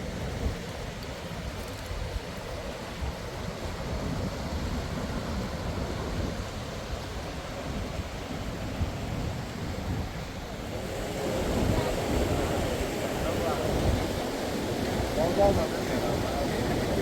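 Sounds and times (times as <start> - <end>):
waterfall rushing: 10.6 - 17.0.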